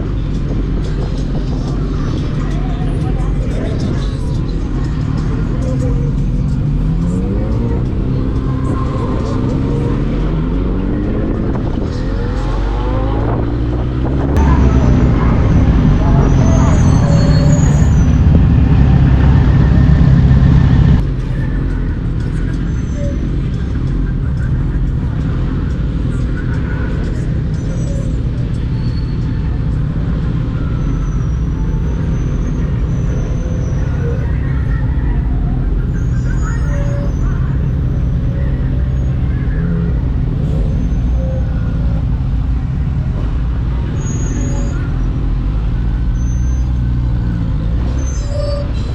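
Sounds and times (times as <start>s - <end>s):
wind rush on microphone: 0.0s - 5.7s, 8.4s - 21.0s
motorcycle engine: 0.0s - 48.9s
rushing wind: 0.0s - 48.9s.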